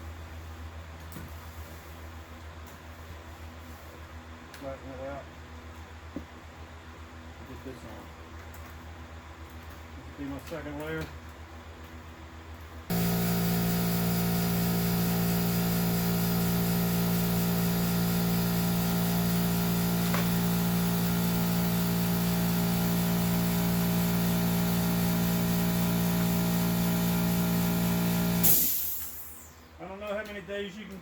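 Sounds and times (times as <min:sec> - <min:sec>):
motor machine humming: 0:12.9 - 0:29.8.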